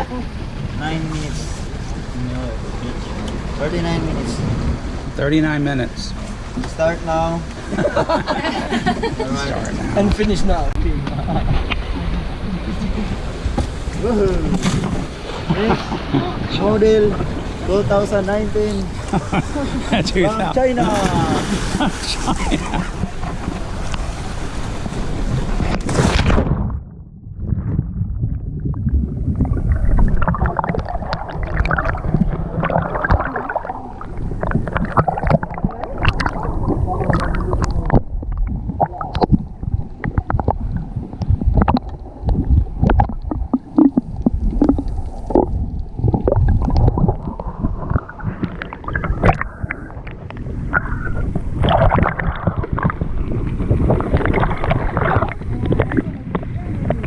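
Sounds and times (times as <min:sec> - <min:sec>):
water splashing and sloshing: 0:00.0 - 0:57.0
wind rumbling on microphone: 0:00.0 - 0:57.0.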